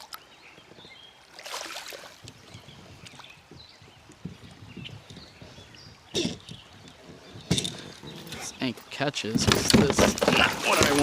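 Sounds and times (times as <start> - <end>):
water splashing and lapping: 1.2 - 11.0
knocks and clicks against hull: 6.1 - 8.5, 9.2 - 11.0.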